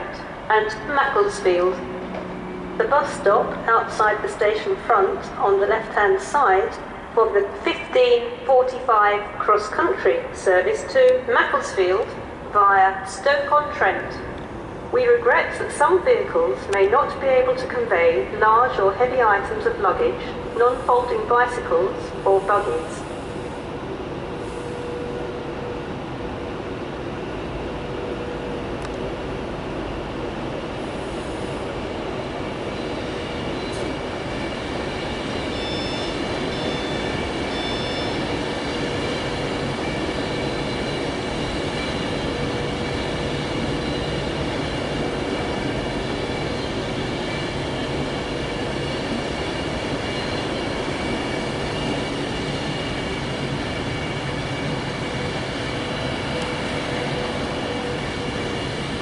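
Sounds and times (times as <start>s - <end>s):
electric train whining: 0.0s - 59.0s
train rail rumble: 0.0s - 59.0s.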